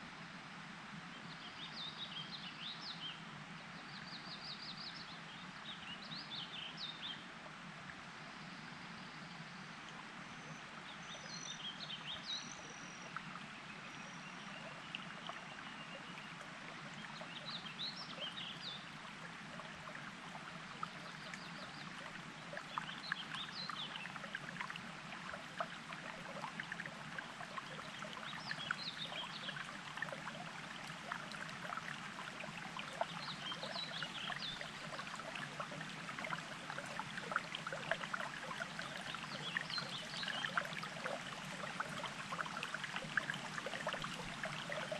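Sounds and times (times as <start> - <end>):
songbird singing: 8.3 - 18.9, 19.5 - 44.9
water burbling and trickling: 9.5 - 44.9.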